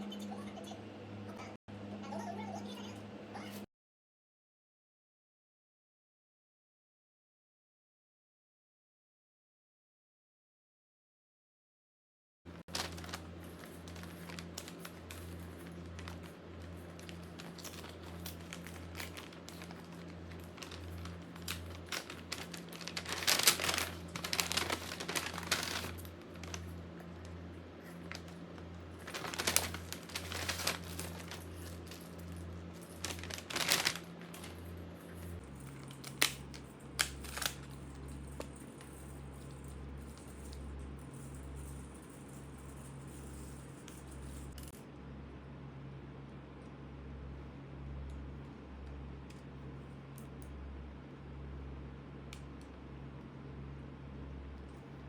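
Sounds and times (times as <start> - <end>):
steady low hum: 12.5 - 55.0
packaging crinkling and rustling: 12.6 - 44.7.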